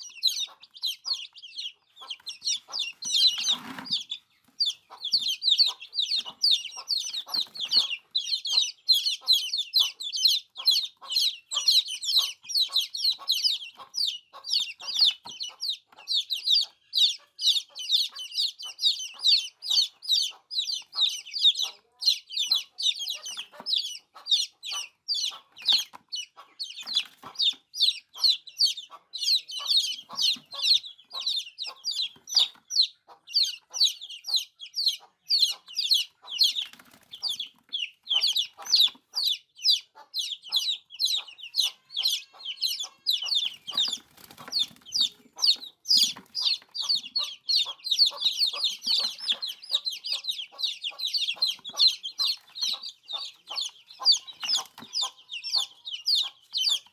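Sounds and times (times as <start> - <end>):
baby chicks peeping: 0.0 - 56.9.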